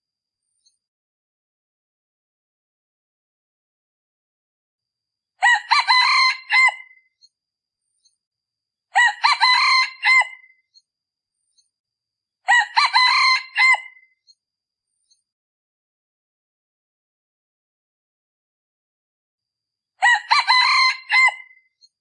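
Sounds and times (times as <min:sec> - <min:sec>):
rooster crowing: 0:05.4 - 0:07.0, 0:09.0 - 0:10.5, 0:12.5 - 0:14.0, 0:20.0 - 0:21.6.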